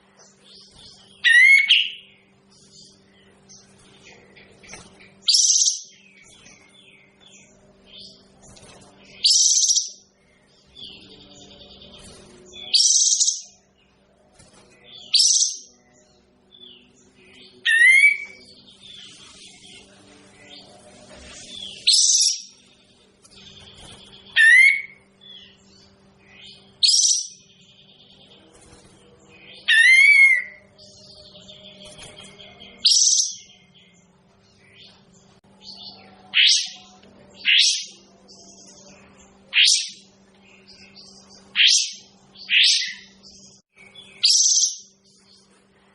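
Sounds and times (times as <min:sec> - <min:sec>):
steady low hum: 0:00.0 - 0:45.9
sharp bird calls: 0:01.0 - 0:02.3, 0:23.7 - 0:25.6, 0:39.5 - 0:45.0.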